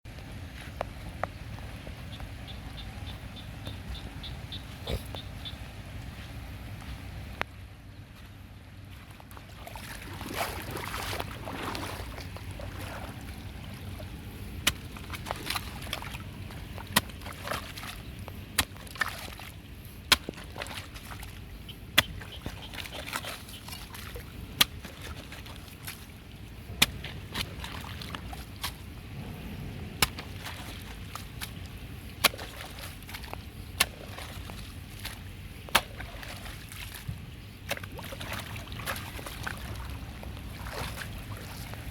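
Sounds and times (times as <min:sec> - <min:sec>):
water sloshing and splashing: 0:08.8 - 0:41.9.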